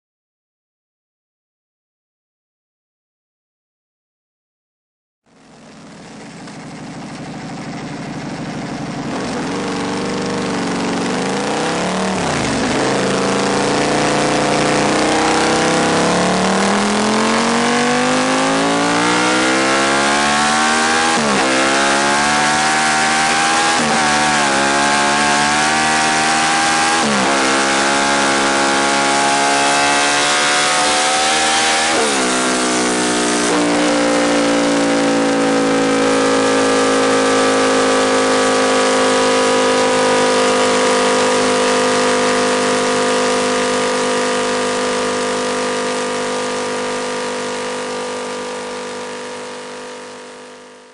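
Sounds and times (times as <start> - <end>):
motorcycle engine revving hard: 5.3 - 50.9.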